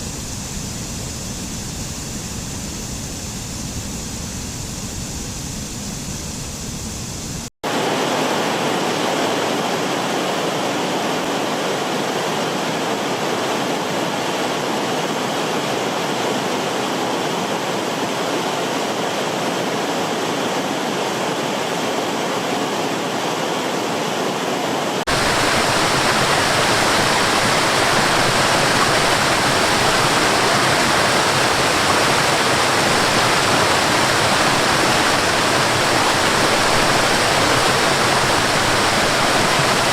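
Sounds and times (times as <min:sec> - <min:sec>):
waterfall rushing: 0:07.6 - 0:39.9.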